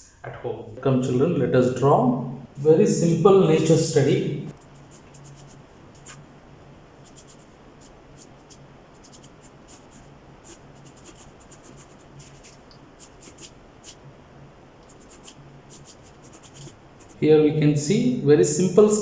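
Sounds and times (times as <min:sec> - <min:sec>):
pencil sketching on paper: 0:04.6 - 0:06.2, 0:07.0 - 0:14.0, 0:14.9 - 0:17.2.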